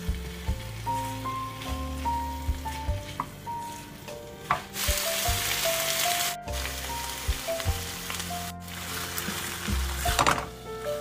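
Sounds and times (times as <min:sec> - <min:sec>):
light background music: 0:00.0 - 0:11.0
seafood sizzling in a wok: 0:00.0 - 0:11.0.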